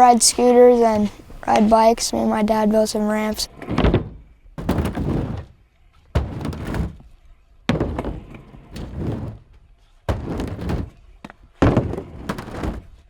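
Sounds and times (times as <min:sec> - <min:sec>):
heavy thuds: 0:00.3 - 0:03.4.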